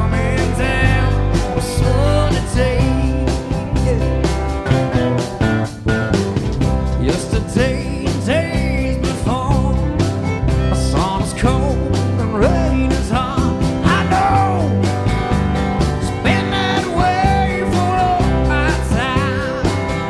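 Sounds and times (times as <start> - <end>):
drum and bass beat: 0.0 - 20.0
live country-rock band: 0.0 - 20.0
sliding lead melody: 0.0 - 20.0.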